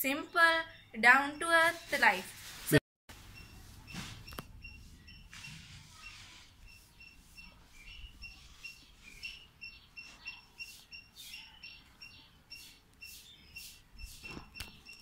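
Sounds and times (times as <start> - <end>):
birds chirping: 3.3 - 15.0.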